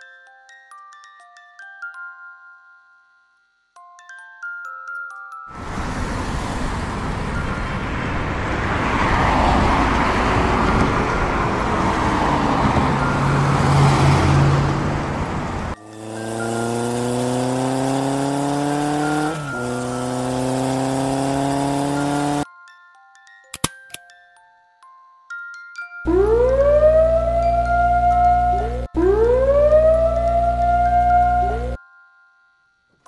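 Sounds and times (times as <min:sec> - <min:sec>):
car engine and road noise: 0:05.5 - 0:22.5, 0:26.1 - 0:31.8
motorcycle engine revving: 0:05.6 - 0:22.4, 0:26.1 - 0:31.8.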